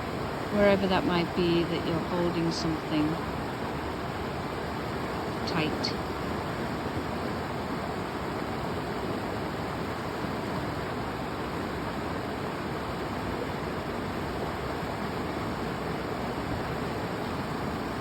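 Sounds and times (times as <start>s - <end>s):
river water rushing: 0.0s - 0.8s, 2.6s - 18.0s.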